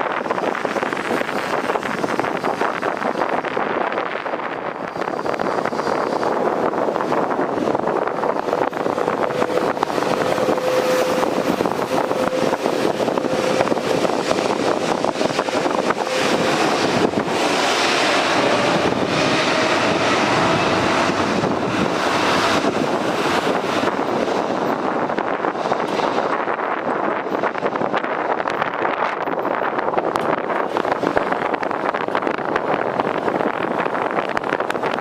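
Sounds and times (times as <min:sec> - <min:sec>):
jet engines whining: 0:00.0 - 0:28.0
wind rumble on microphone: 0:00.0 - 0:35.0.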